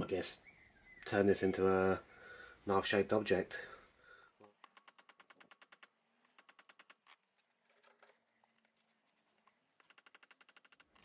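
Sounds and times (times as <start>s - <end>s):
faint rapid clicking: 4.4s - 7.1s, 8.5s - 11.0s.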